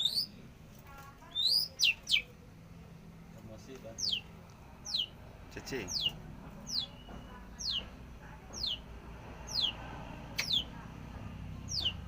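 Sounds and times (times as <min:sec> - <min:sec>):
shrike calling: 0:00.0 - 0:00.4, 0:01.2 - 0:02.4, 0:03.9 - 0:07.9, 0:09.5 - 0:09.8, 0:10.4 - 0:10.8.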